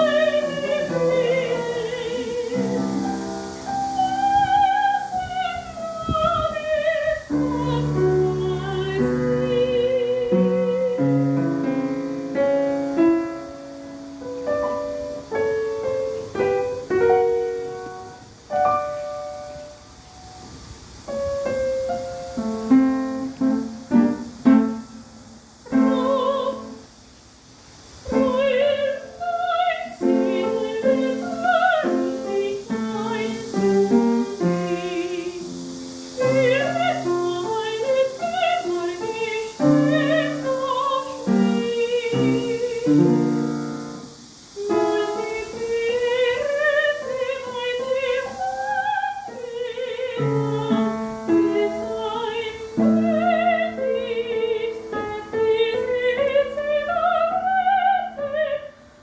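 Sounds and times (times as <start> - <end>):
woman singing operatically: 0.0 - 11.8, 25.7 - 26.8, 28.1 - 35.6, 36.2 - 43.6, 44.6 - 58.9
piano: 0.0 - 59.0.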